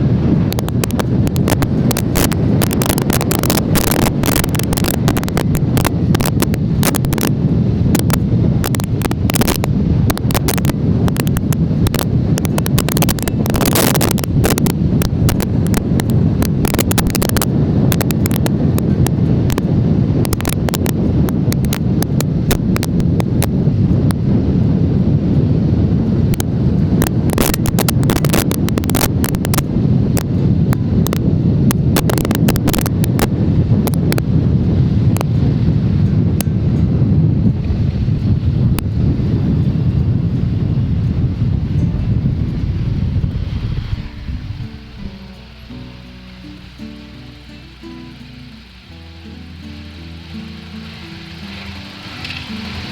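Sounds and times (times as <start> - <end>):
wind buffeting microphone: 0.0 - 52.9
sharp crackles: 0.4 - 19.6, 20.2 - 23.5, 26.3 - 30.4, 31.0 - 34.3, 42.5 - 52.9.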